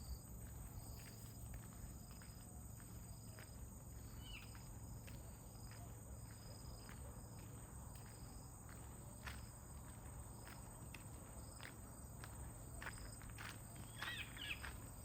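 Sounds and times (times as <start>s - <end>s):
insects chirping: 0.0s - 15.0s
bird chirp: 4.2s - 4.6s, 13.9s - 14.7s.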